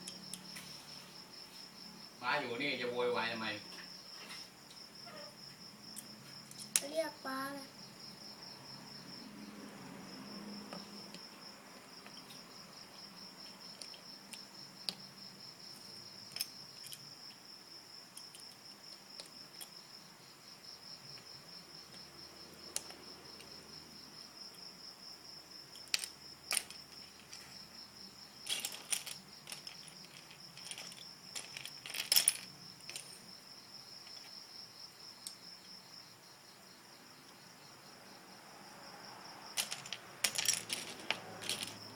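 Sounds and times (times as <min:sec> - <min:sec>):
cricket chirping: 0:00.0 - 0:41.9
plastic bricks clattering: 0:25.7 - 0:27.5, 0:28.4 - 0:33.2, 0:39.6 - 0:41.9.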